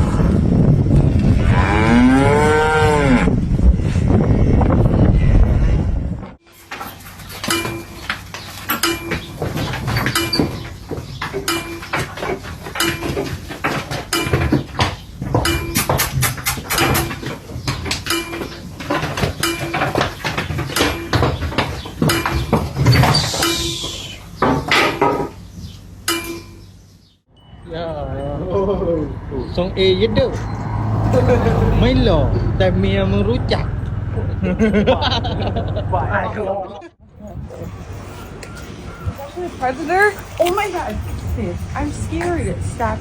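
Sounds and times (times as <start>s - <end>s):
cattle mooing: 1.3s - 3.4s
clinks and knocks clattering: 6.5s - 23.7s, 37.5s - 43.0s.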